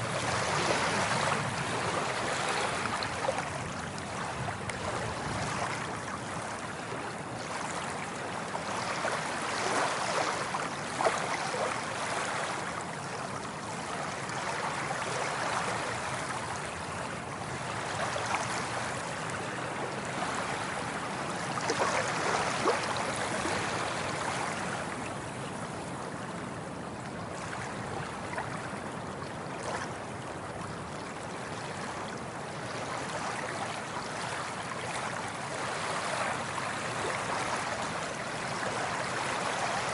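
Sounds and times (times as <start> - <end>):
waves washing in: 0.0 - 39.9
water splashing and gurgling: 21.6 - 24.9.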